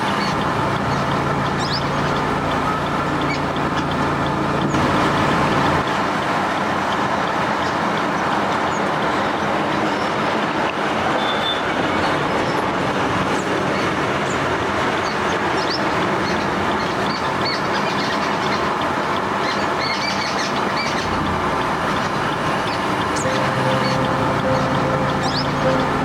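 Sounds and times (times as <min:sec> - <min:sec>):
small birds chirping: 0:00.0 - 0:05.0, 0:15.6 - 0:26.0
loud steady rushing noise: 0:22.9 - 0:26.0.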